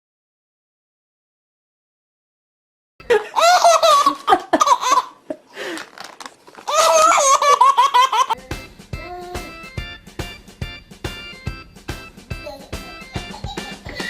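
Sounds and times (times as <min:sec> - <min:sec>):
baby laughing: 0:03.1 - 0:05.4, 0:06.6 - 0:08.4, 0:12.4 - 0:14.0
music: 0:08.4 - 0:14.0.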